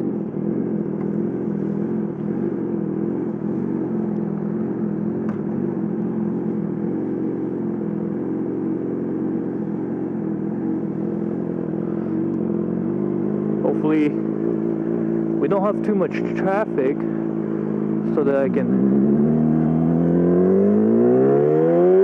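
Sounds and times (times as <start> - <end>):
motorcycle engine running steadily: 0.0 - 22.0.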